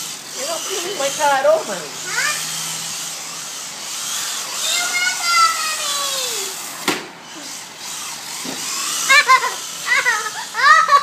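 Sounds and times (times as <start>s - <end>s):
rc car electric motor whine: 0.0s - 11.0s
sharp knock: 6.8s - 7.1s.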